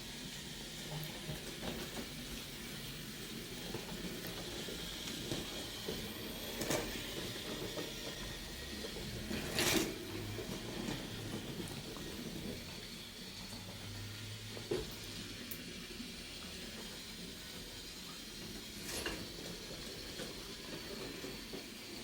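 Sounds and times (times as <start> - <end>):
toy train motor whirring: 0.0 - 22.0
wheels rattling on wooden track: 18.5 - 22.0.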